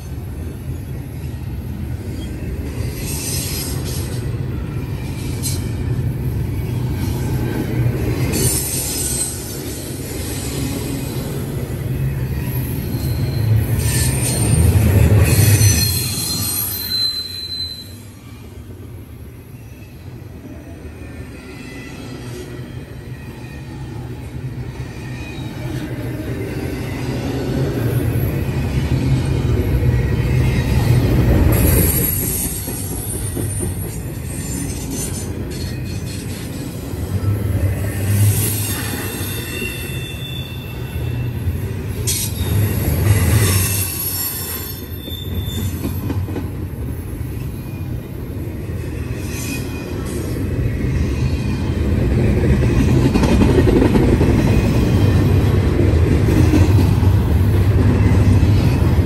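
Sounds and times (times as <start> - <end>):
freight train wheels rumbling: 0.0 - 59.0
high wheel squeal: 8.3 - 18.5, 30.1 - 46.3, 48.8 - 51.8.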